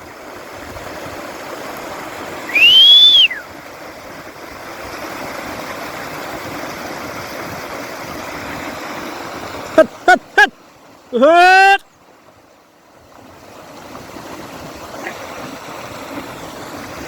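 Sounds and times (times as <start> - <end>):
loud whistle rising then falling: 2.5 - 3.5.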